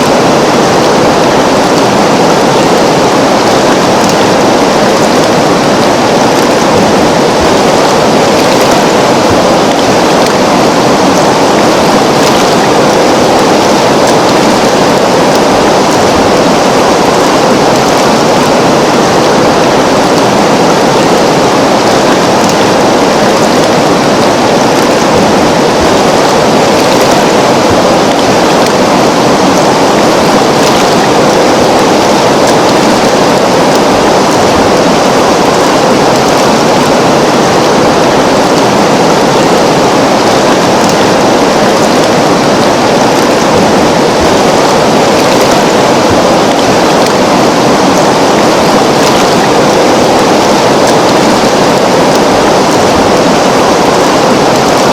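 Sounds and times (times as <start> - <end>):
river water flowing: 0.0 - 54.9.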